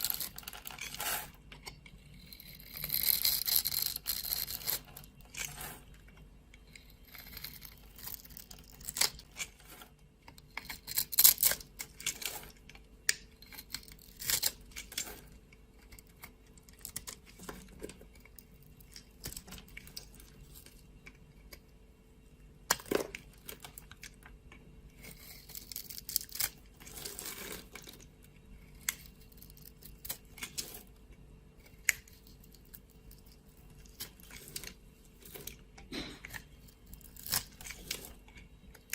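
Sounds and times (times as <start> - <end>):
knife cutting dry soap: 0.0 - 6.0, 6.6 - 20.8.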